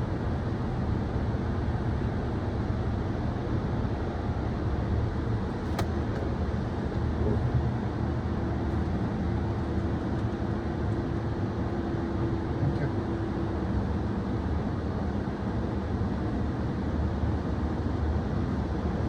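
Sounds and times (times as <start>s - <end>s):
sharp click: 5.7s - 6.0s.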